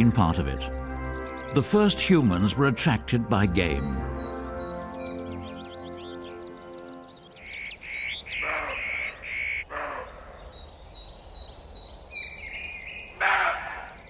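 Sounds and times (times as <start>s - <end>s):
small birds chirping: 0.0s - 14.0s
crow-like bird calls: 7.4s - 10.7s, 12.6s - 14.0s.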